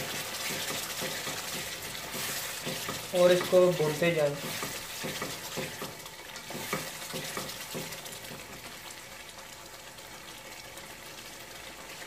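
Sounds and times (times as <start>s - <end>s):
spatula stirring food: 0.0s - 9.5s
food sizzling in a pot: 0.0s - 12.0s.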